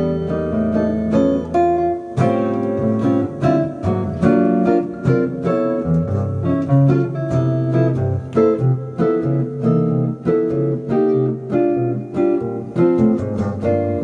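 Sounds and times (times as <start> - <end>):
walking bass line: 0.0 - 10.1
jazz guitar chords: 0.0 - 14.0.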